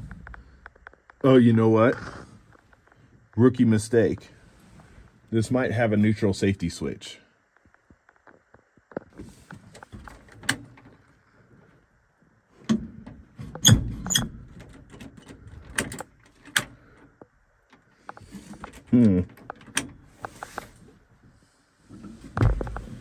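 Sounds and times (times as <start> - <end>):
falling creak: 13.6 - 14.5
clicks and clunks of cab controls: 17.7 - 20.8.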